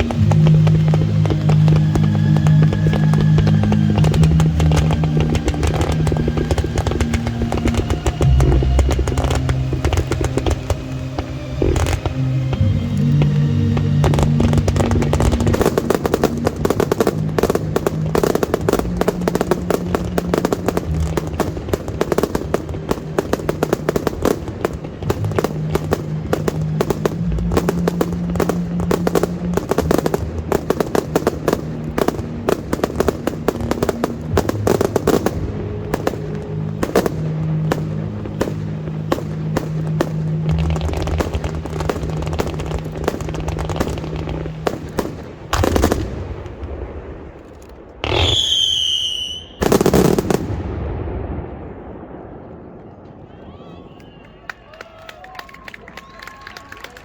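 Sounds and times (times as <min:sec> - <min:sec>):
music with low notes: 0:00.0 - 0:48.4
fireworks exploding: 0:00.0 - 0:57.0.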